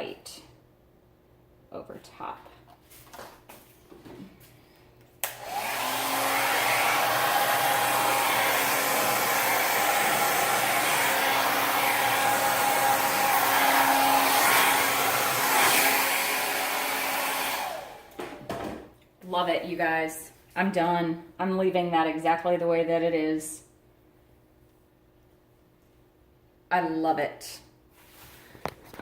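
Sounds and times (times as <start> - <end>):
hair dryer switch click: 5.2 - 5.8
hair dryer running: 5.2 - 18.6.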